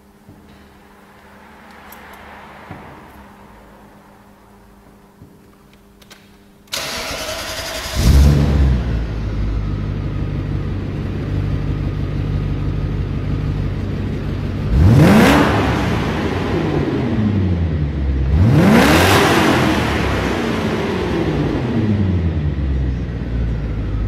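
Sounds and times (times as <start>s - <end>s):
car engine idling: 6.7s - 24.0s
engine revving: 6.8s - 9.4s, 14.6s - 22.5s.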